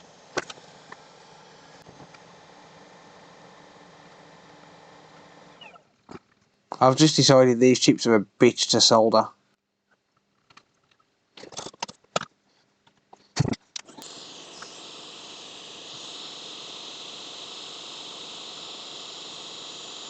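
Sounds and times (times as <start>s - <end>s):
hot air tool hissing: 0.0s - 5.7s, 13.9s - 20.0s.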